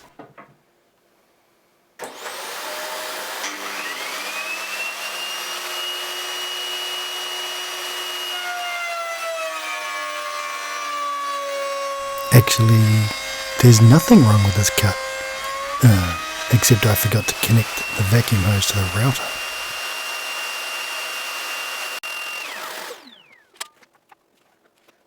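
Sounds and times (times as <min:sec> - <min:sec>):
router motor whining: 0:03.4 - 0:23.4.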